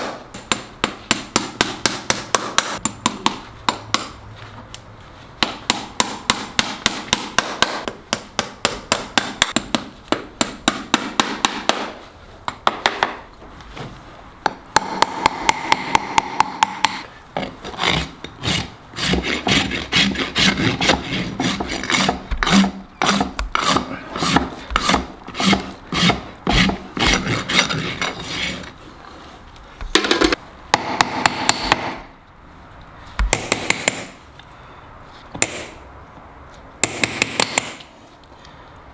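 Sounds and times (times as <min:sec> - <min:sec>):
hammer tapping nails: 0:00.4 - 0:04.2, 0:05.4 - 0:13.2, 0:14.4 - 0:17.0, 0:29.9 - 0:32.1, 0:33.2 - 0:34.2, 0:36.8 - 0:37.9
hoof rasp scraping: 0:17.4 - 0:29.5.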